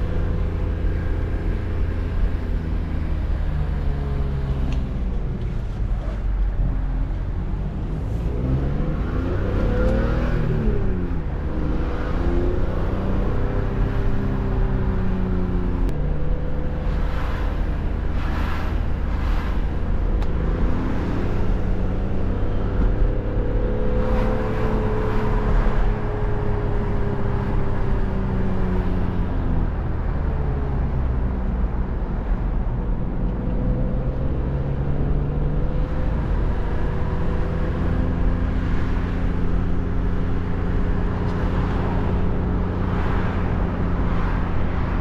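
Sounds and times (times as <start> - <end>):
road rumble: 0.0 - 45.0
car engine revving: 7.4 - 29.3.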